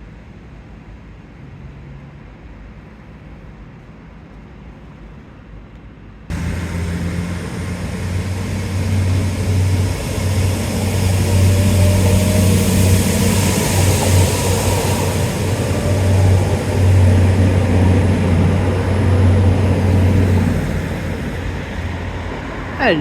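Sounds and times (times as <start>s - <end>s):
heavy engine running: 6.3s - 22.0s
rushing noise: 6.3s - 23.0s.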